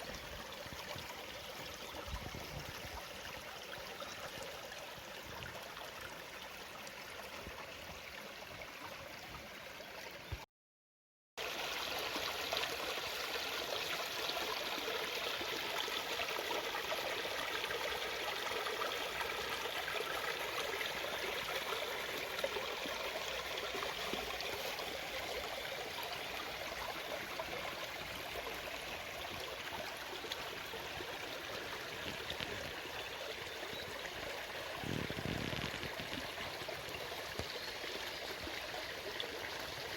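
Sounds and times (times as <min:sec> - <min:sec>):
stream babbling: 0:11.4 - 0:39.9.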